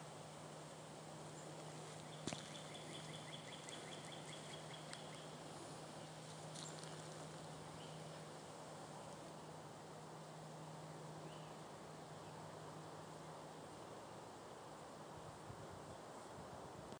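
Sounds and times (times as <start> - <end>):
low steady hum: 0.0 - 16.9
bird trilling: 2.0 - 5.4.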